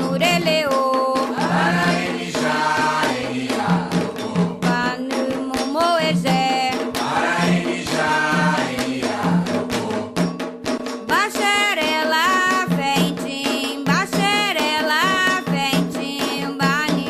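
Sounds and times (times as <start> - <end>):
drum and percussion rhythm: 0.0 - 17.0
voices chanting: 1.4 - 4.0, 7.0 - 9.4.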